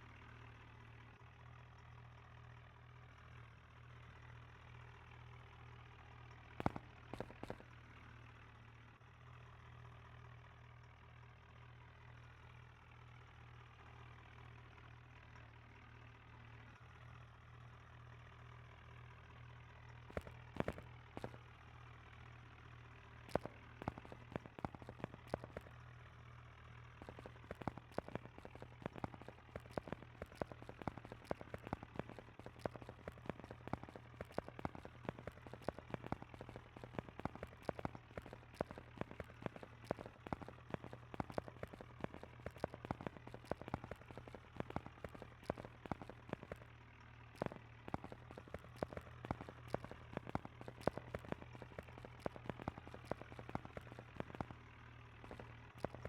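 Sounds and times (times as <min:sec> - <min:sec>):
tractor engine idling: 0:06.2 - 0:07.7, 0:20.1 - 0:56.0.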